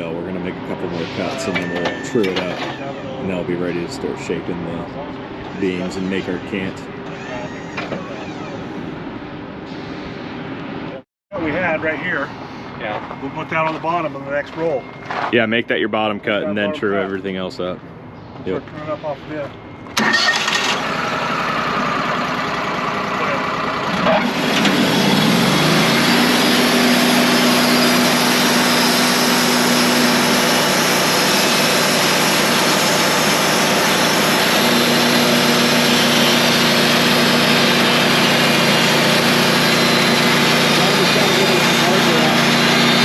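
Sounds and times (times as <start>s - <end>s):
sawmill engine running: 0.0s - 9.5s, 20.0s - 43.0s
band blade running: 24.4s - 43.0s.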